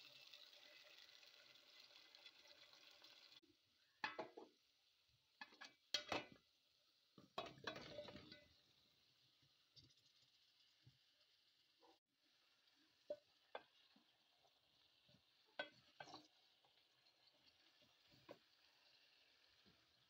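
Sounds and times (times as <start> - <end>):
food sizzling in oil: 0.0 - 20.0
clattering in pot: 4.0 - 4.5, 5.4 - 6.4, 7.4 - 8.5, 15.6 - 16.4.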